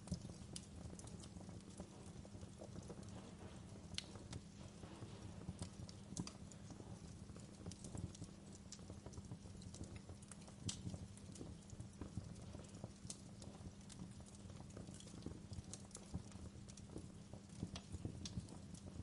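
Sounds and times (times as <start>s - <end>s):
low steady rumble: 0.0s - 12.4s
wood fire crackling: 0.0s - 19.0s.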